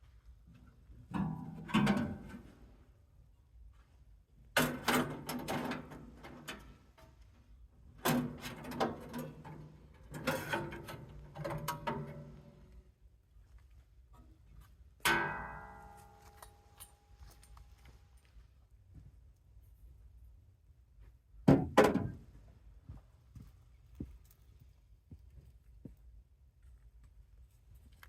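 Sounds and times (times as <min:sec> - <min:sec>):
metal clanking and rattling: 0:04.6 - 0:07.0, 0:08.0 - 0:12.7.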